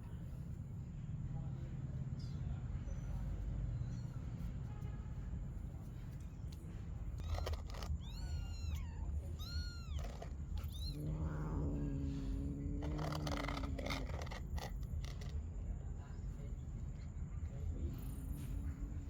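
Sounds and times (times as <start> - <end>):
constant low rumble: 0.0 - 19.0
kittens meowing: 7.2 - 14.7.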